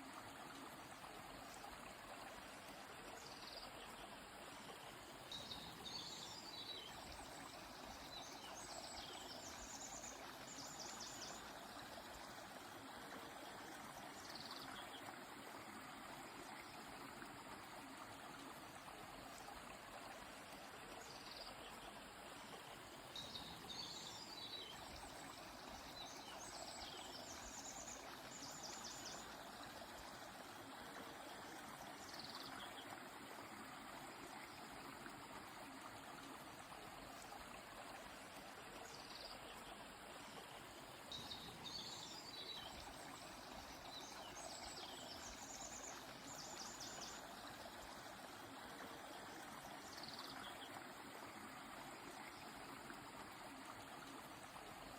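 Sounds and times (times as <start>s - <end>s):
stream flowing: 0.0s - 54.9s.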